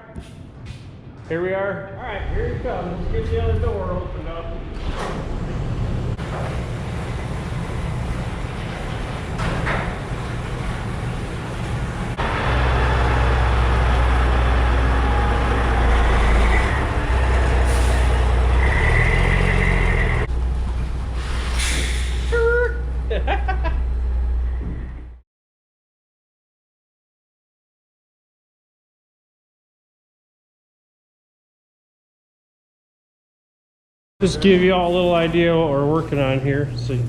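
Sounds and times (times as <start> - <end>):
truck engine running: 5.4 - 25.2.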